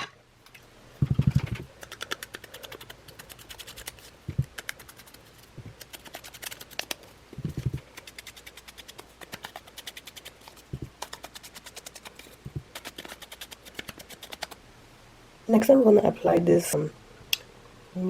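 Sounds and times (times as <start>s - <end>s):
dull thumps: 4.2s - 4.6s, 7.4s - 7.8s, 10.7s - 11.0s, 12.4s - 12.7s.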